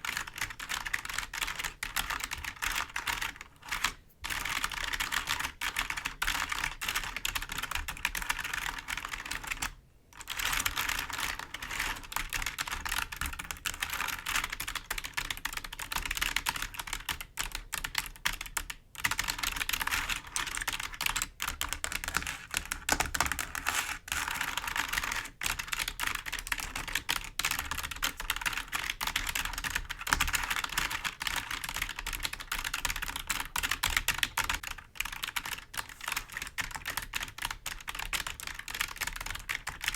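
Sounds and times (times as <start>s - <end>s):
fingers tapping keyboard keys: 0.1s - 39.9s.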